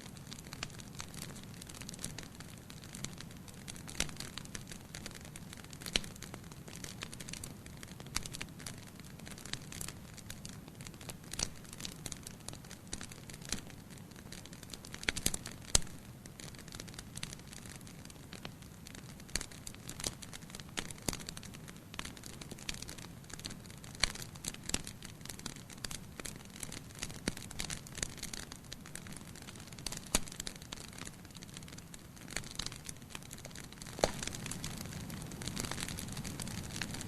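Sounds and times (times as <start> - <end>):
low rumble of flames: 0.0 - 37.0
wood crackling and popping: 0.0 - 37.0.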